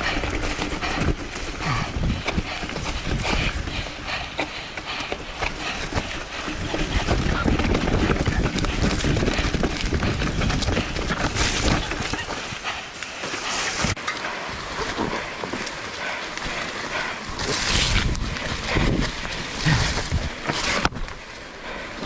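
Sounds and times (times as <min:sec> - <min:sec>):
wind buffeting microphone: 0:00.0 - 0:12.8, 0:16.4 - 0:21.1
mountain bike hiss and rattle: 0:00.0 - 0:22.0.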